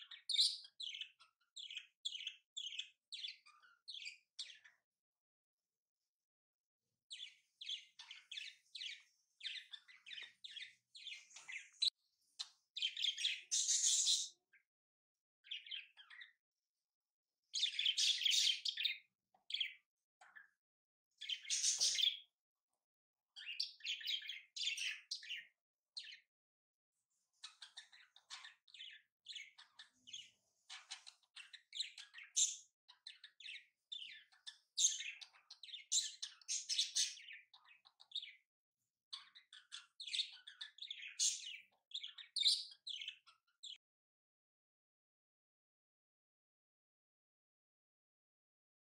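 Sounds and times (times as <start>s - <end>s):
small birds twittering: 0.0s - 5.0s, 7.0s - 14.8s, 15.4s - 16.5s, 17.4s - 22.4s, 23.3s - 26.4s, 27.0s - 43.9s.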